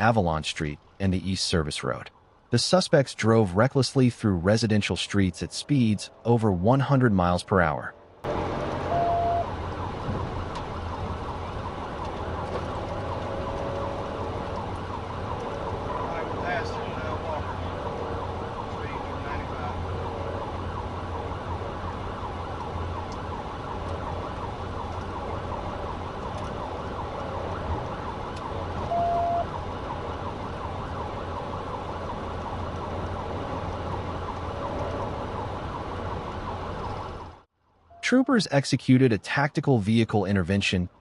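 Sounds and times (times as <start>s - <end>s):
car engine and road noise: 0.0s - 38.2s
police siren wailing: 4.1s - 38.4s
short beep: 8.9s - 9.5s, 28.9s - 29.5s.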